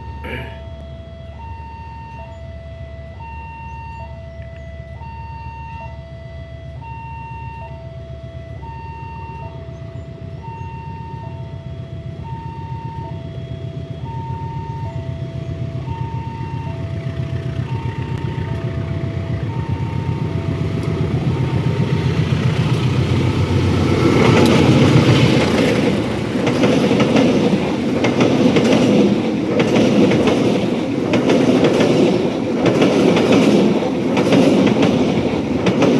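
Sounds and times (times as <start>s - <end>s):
level crossing two-tone alarm: 12.2s - 17.0s.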